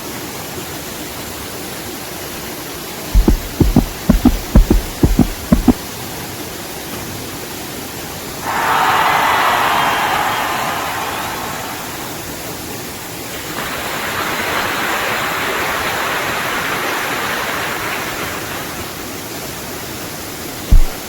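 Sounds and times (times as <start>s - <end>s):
deep thump: 3.2s - 5.8s, 20.7s - 21.0s
falling water rushing: 3.2s - 5.8s, 8.4s - 19.4s.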